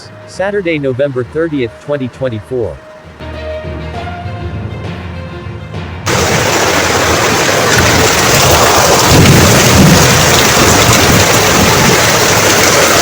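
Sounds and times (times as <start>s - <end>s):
deep rumble: 6.1s - 13.0s
heavy rain downpour hissing: 6.1s - 13.0s.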